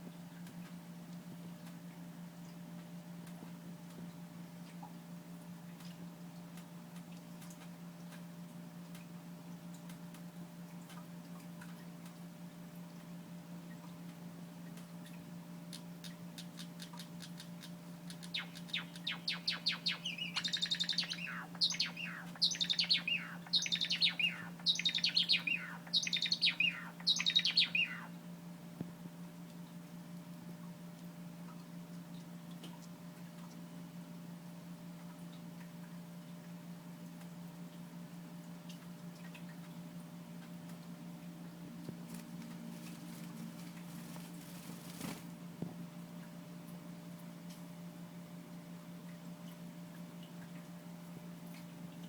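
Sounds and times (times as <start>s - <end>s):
steady low hum: 0.0s - 36.0s
sparrows ticking and peeping: 16.3s - 28.1s.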